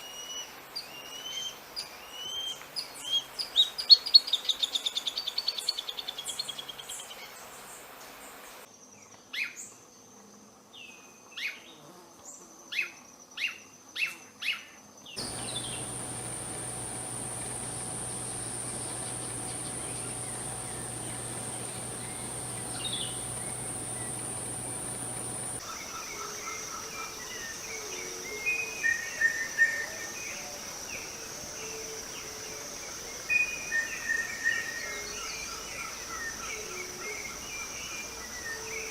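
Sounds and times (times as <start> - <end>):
high-pitched insect drone: 15.2 - 25.7
birds calling: 15.2 - 26.4.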